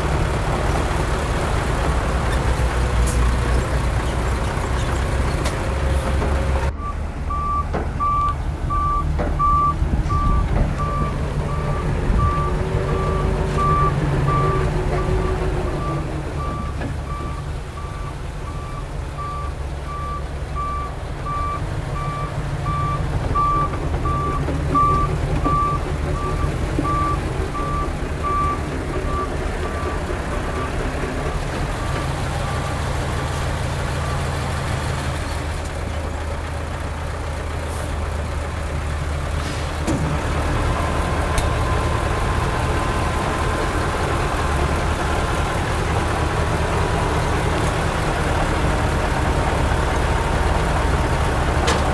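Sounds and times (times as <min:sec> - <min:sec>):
diesel engine rumble: 0:00.0 - 0:51.9
reversing alarm beeping: 0:06.7 - 0:30.8.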